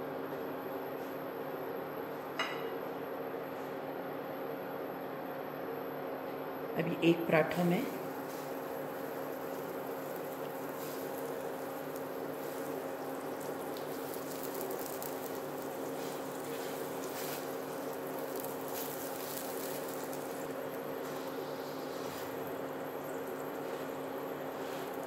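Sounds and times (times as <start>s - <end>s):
induction cooktop humming: 0.0s - 25.0s
flatbread sizzling in oil: 7.8s - 25.0s.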